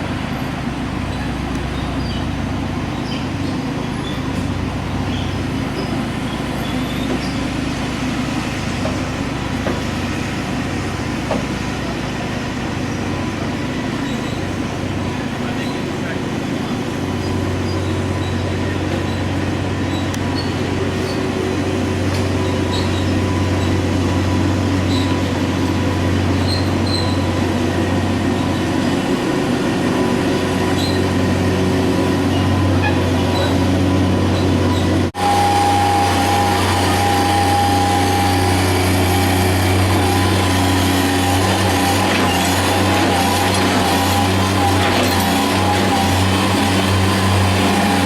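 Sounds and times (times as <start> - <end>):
machinery humming: 0.0 - 48.0
high whine: 19.9 - 48.0.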